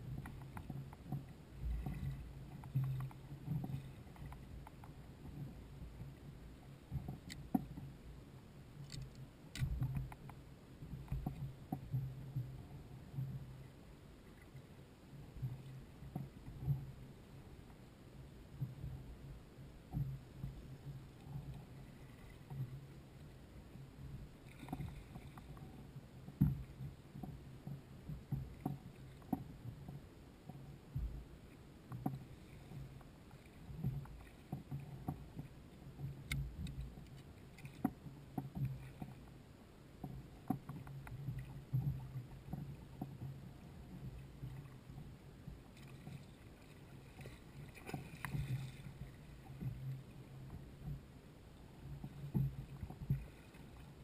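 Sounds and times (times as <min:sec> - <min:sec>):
knocks and clicks against kayak hull: 0:00.0 - 0:06.2, 0:06.9 - 0:07.9, 0:08.8 - 0:13.5, 0:24.5 - 0:31.3, 0:31.9 - 0:39.4, 0:40.0 - 0:51.1, 0:51.8 - 0:54.0
low steady hum: 0:00.0 - 0:54.0
water lapping: 0:31.9 - 0:54.0.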